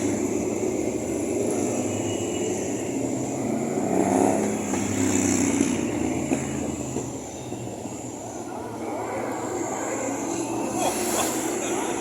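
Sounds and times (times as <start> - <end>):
motorcycle revving: 0.0 - 7.2
motorcycle engines running: 0.0 - 12.0.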